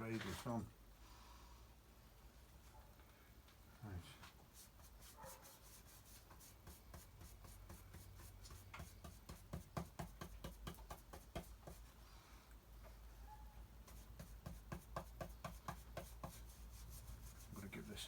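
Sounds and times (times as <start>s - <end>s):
stencil brush dabbing on wood: 4.2s - 12.0s, 13.8s - 18.0s.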